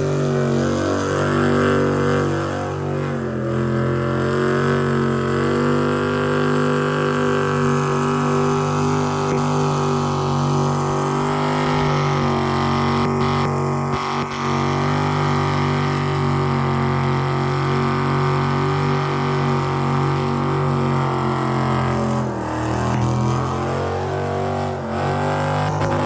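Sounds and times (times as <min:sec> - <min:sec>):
engine at high revs: 0:00.0 - 0:26.0.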